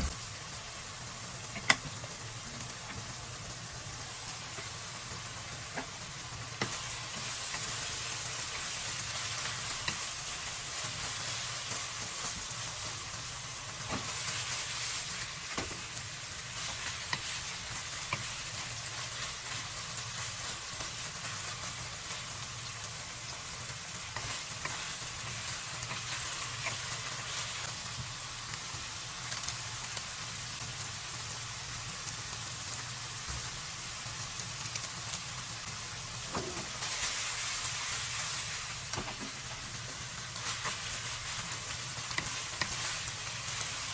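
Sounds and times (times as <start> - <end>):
food sizzling in hot oil: 0.0 - 43.9.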